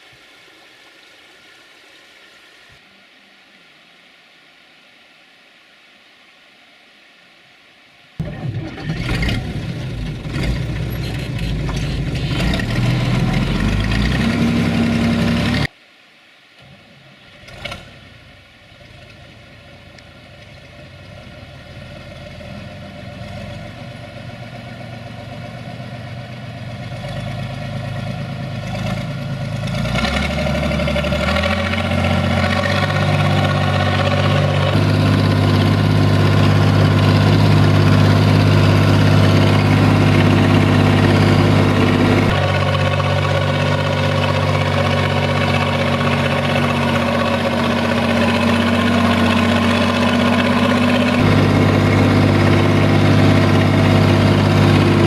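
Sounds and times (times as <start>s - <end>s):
tractor diesel engine running: 8.2s - 15.7s, 18.8s - 55.0s.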